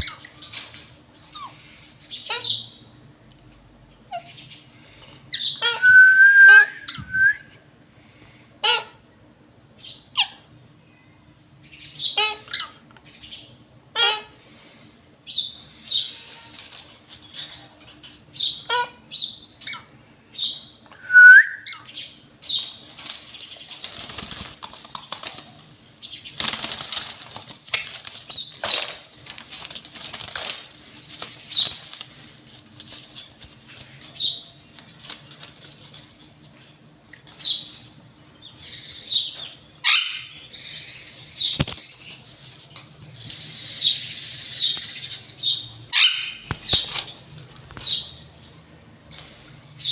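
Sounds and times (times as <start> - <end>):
wings flapping and rustling: 0.0 - 2.1, 16.1 - 18.3, 22.4 - 38.3, 41.2 - 43.5, 46.0 - 48.2
parrots squawking: 0.0 - 2.8, 5.3 - 6.9, 8.6 - 9.0, 10.1 - 10.5, 12.0 - 12.8, 13.9 - 14.4, 15.8 - 17.0, 18.4 - 19.9, 39.8 - 41.5, 43.6 - 47.0.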